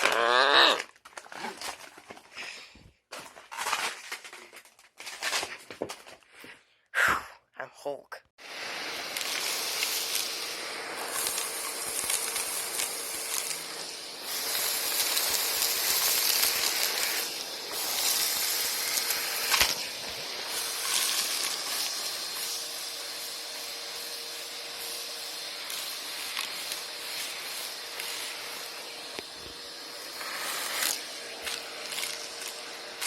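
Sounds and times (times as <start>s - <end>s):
vacuum cleaners running: 0.0s - 0.8s, 8.4s - 33.0s.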